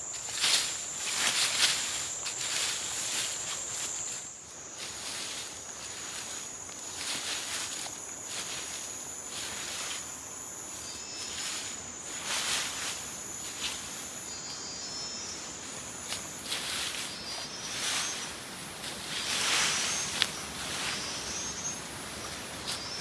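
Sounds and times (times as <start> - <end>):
rustling: 0.1 - 23.0
insect trilling: 10.7 - 23.0.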